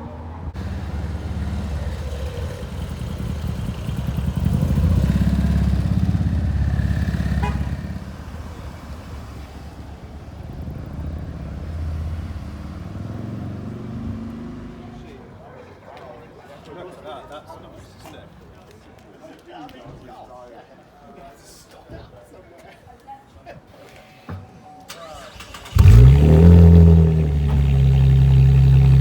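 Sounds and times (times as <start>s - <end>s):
car engine driving past: 0.0s - 15.3s, 25.2s - 29.0s.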